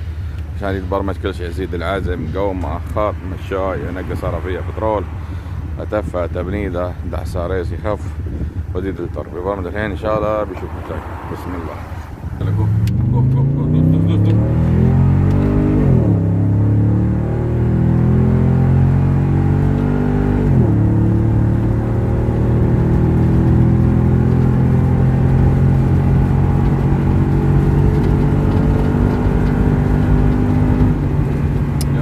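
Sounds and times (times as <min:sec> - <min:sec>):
engine accelerating hard: 0:09.6 - 0:32.0
gear upshifts: 0:09.7 - 0:32.0.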